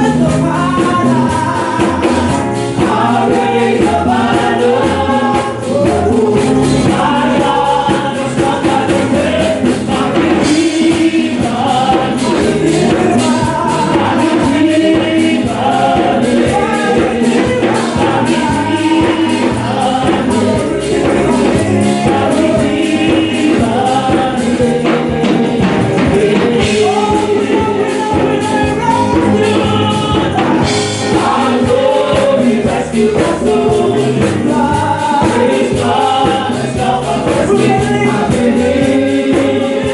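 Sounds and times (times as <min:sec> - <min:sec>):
gospel choir with instruments: 0:00.0 - 0:39.9.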